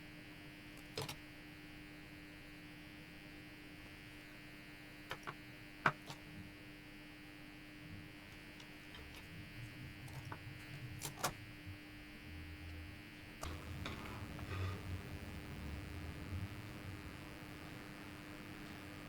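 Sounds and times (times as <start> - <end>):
electrical hum: 0.0 - 19.0
clicks and taps of handling materials: 5.1 - 6.2.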